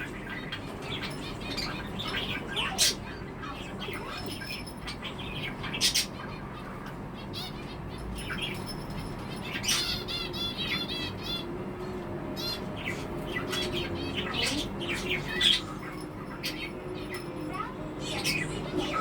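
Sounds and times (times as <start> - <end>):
budgerigar chirping: 9.4 - 11.5.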